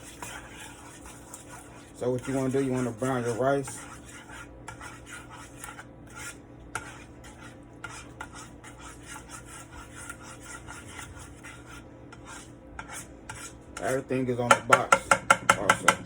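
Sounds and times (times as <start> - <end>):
utensil scraping a cooking pan: 0.0 - 16.0.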